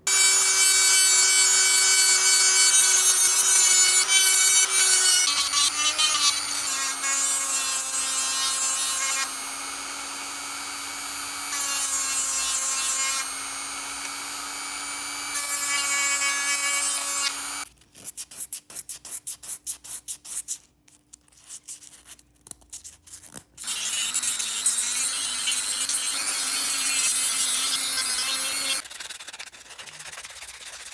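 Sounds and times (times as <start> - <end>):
small power tool humming: 0.0 - 17.6, 23.6 - 28.8.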